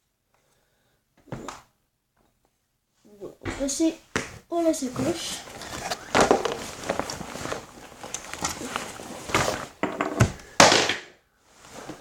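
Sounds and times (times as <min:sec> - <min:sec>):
fabric bag rustling: 0:04.9 - 0:09.8.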